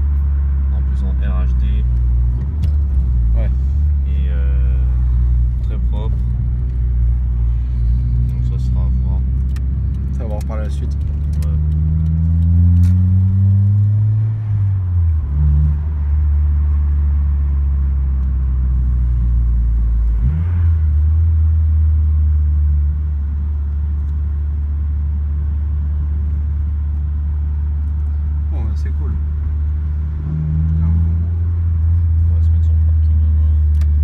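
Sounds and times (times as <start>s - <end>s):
car engine accelerating: 0.0s - 34.0s.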